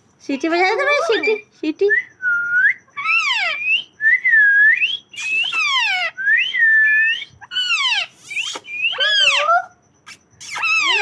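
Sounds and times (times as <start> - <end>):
parrot whistling: 2.2 - 11.0.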